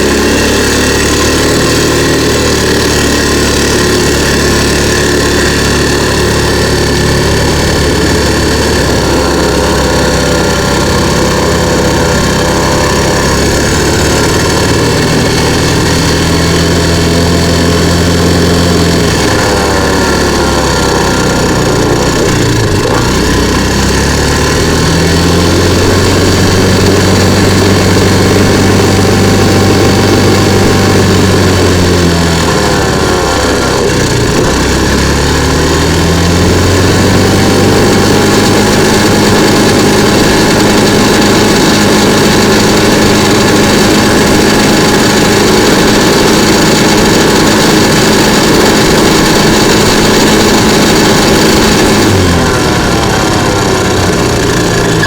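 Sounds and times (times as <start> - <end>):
engine spitting and backfiring: 0.0 - 55.0
scooter engine running: 0.0 - 55.0.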